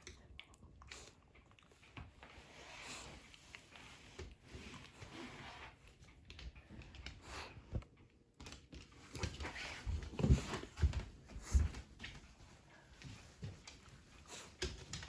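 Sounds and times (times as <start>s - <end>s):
dog paws scrabbling: 5.6s - 15.0s.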